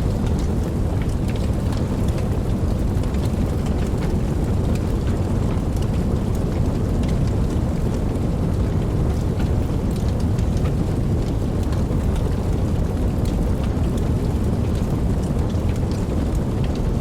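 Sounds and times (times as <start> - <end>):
steady rain rushing: 0.0 - 17.0.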